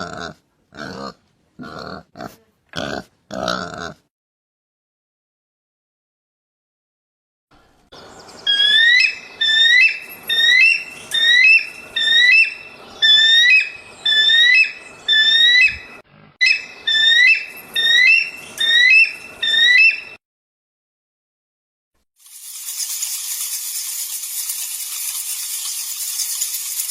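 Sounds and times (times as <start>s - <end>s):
animal whistled call: 8.5s - 20.2s.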